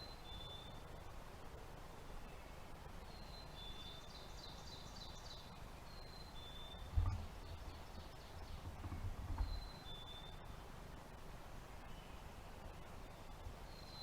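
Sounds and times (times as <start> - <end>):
dull low thump: 6.8 - 9.8
low rumbling: 6.8 - 10.0.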